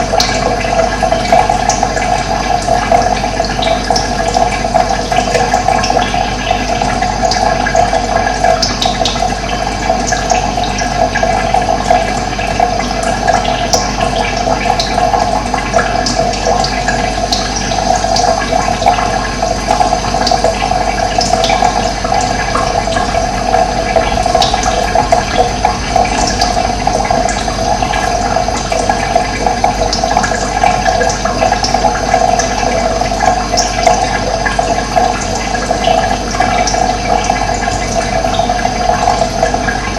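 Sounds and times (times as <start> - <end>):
water rushing: 18.4 - 39.9.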